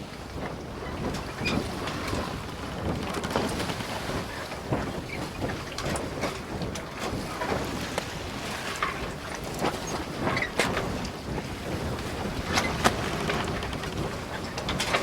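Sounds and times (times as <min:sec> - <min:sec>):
wind buffeting microphone: 0:00.0 - 0:15.0
sharp knocks and clatter: 0:12.2 - 0:15.0.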